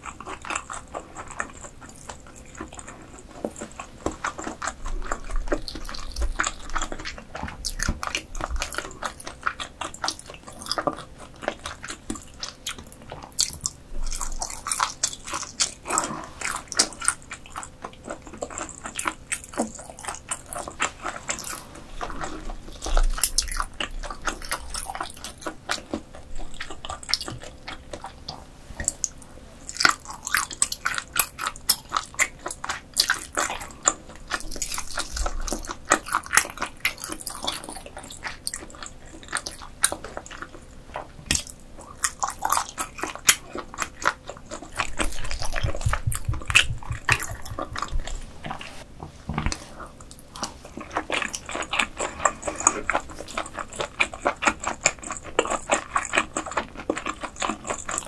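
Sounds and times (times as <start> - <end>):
close chewing with mouth clicks: 0.0 - 58.0.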